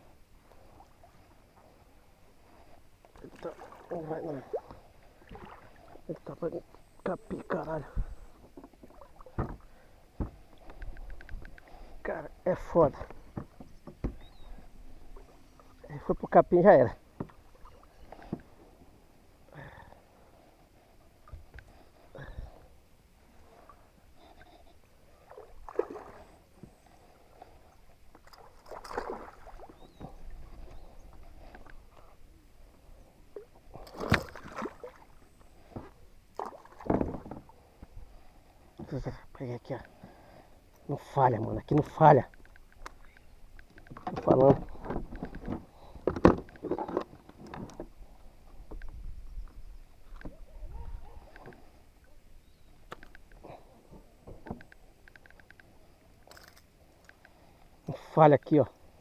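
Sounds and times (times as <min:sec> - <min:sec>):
water splashing around kayak: 0:00.0 - 0:39.3, 0:39.9 - 0:49.1
knocks and handling on a kayak: 0:07.3 - 0:11.7, 0:12.8 - 0:14.7, 0:17.0 - 0:17.5, 0:33.7 - 0:34.6, 0:35.6 - 0:38.0, 0:41.7 - 0:51.7, 0:52.8 - 0:55.6
light clicks: 0:10.6 - 0:11.7, 0:41.7 - 0:44.5, 0:52.8 - 0:53.4, 0:54.4 - 0:57.4.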